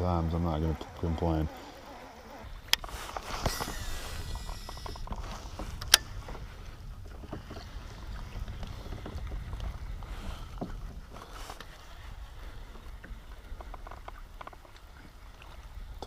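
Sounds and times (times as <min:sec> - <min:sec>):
low rumble: 0:02.5 - 0:11.5.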